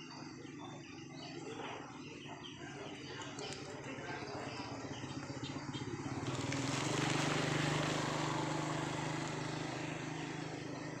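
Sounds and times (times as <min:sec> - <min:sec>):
engine running steadily: 0:02.6 - 0:11.0.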